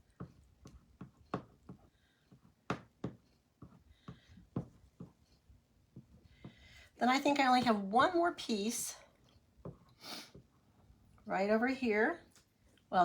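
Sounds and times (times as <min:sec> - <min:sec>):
squeegee tapping on chalkboard: 0:00.1 - 0:05.2.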